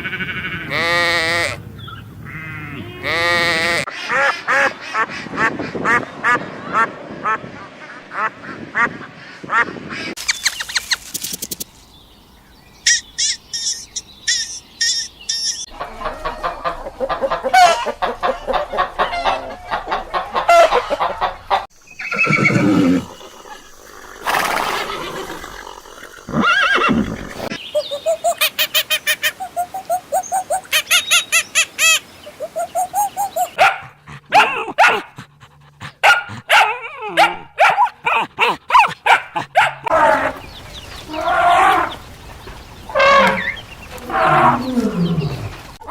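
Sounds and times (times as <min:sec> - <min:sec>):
animal calls and cries: 0:12.8 - 0:45.9.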